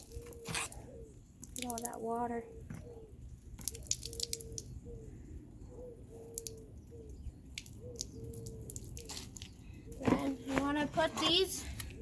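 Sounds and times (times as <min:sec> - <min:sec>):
wet foam filter squelching: 0:03.5 - 0:04.8, 0:07.4 - 0:12.0.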